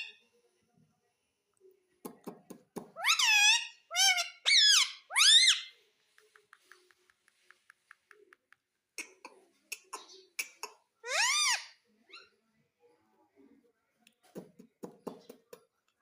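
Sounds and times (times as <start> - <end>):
parrot squeaky calls: 3.0 - 5.7, 10.0 - 12.3
faint quick clicks: 6.1 - 8.7.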